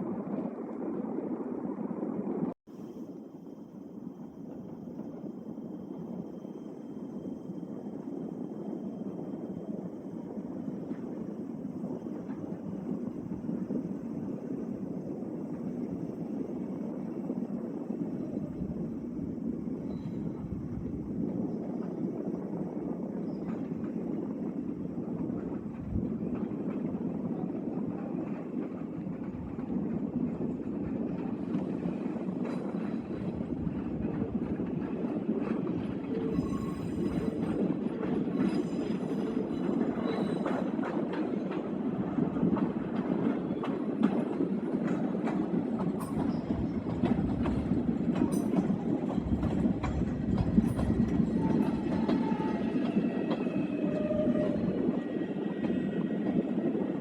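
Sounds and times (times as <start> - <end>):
train wheels clicking over rails: 22.6 - 57.0
high wheel squeal: 36.2 - 37.6, 50.8 - 55.7.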